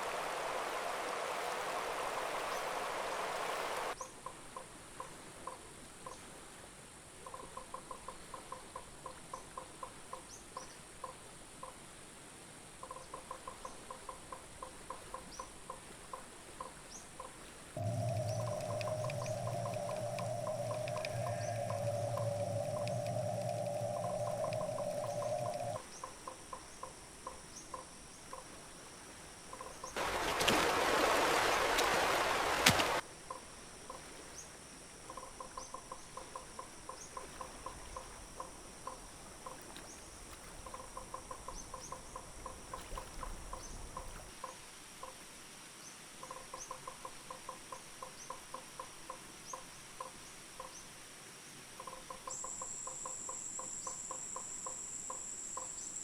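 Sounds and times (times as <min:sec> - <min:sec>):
trains of chirping calls: 0:17.8 - 0:25.8
higher-pitched insect tone: 0:17.8 - 0:27.8, 0:51.8 - 0:56.0
high insect drone: 0:17.8 - 0:28.1.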